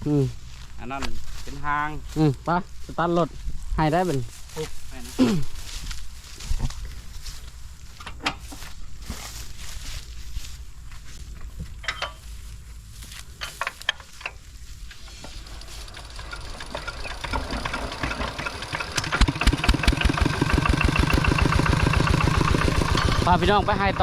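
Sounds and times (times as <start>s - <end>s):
vehicle engine chugging: 15.4s - 24.0s.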